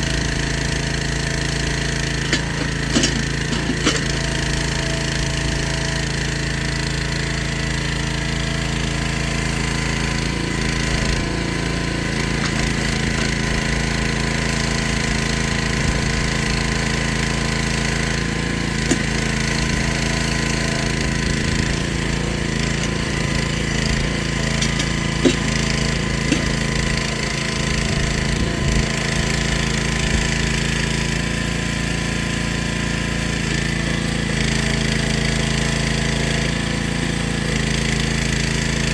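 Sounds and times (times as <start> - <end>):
excavator engine running: 0.0 - 31.3.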